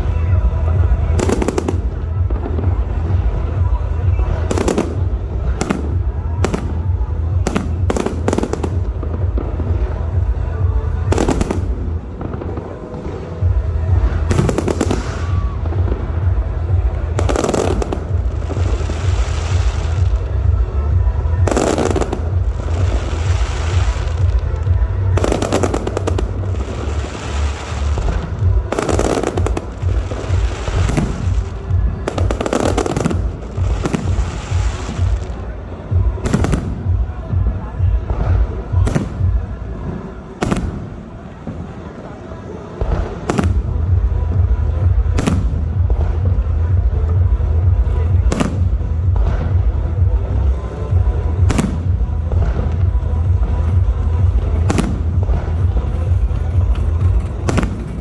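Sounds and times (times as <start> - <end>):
fireworks bangs and crackle: 0.0 - 58.0
low rumble: 42.8 - 58.0.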